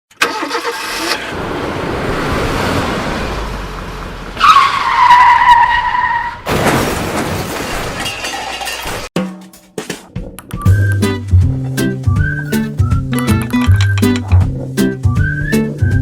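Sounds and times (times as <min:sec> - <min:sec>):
loud tyre squeal: 0:04.4 - 0:06.4.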